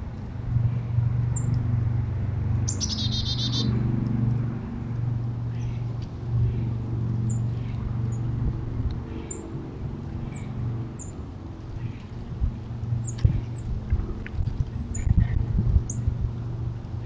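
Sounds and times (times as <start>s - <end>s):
steady low hum: 0.0s - 17.0s
songbird trilling and chirping: 2.7s - 3.7s.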